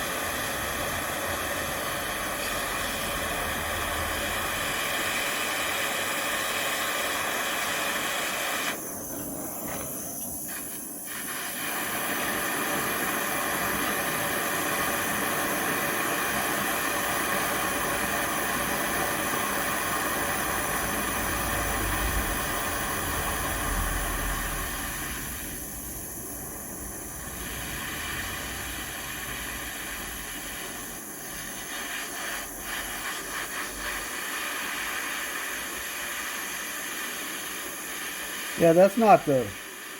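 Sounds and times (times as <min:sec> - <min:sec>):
gas torch flame hissing: 0:00.0 - 0:39.9.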